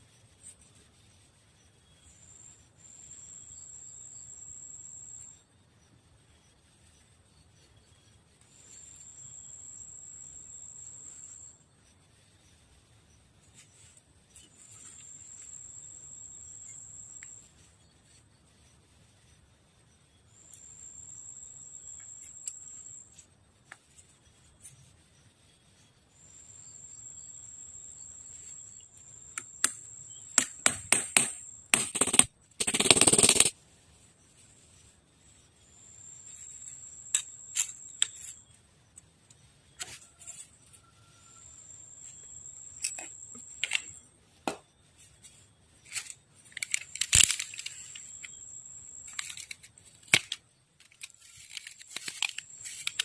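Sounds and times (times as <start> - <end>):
insects trilling: 1.2 - 33.6, 44.8 - 53.0.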